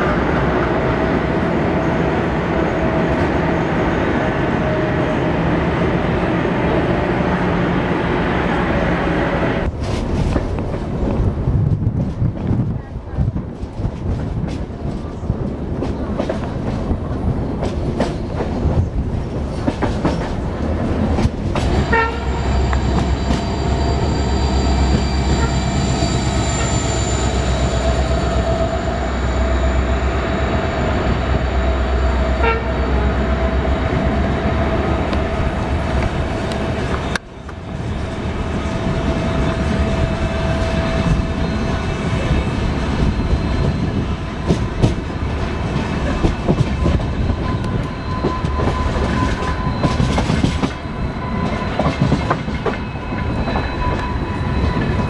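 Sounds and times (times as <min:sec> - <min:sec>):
train rolling noise: 0:00.0 - 0:55.0.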